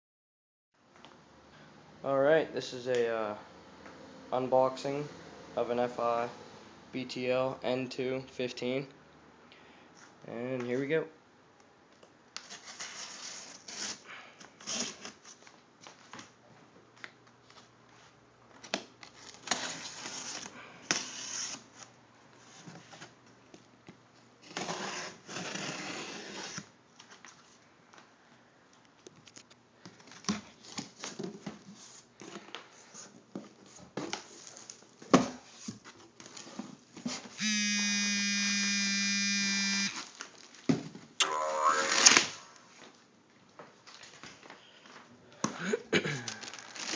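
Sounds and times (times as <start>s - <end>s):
steady buzz: 37.4s - 40.0s
cardboard box tearing and rustling: 46.3s - 46.9s.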